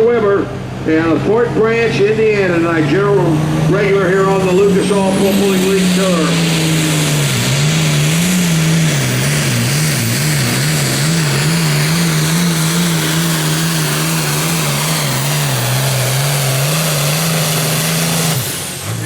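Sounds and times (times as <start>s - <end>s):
tractor diesel engine at full power: 0.0s - 19.0s.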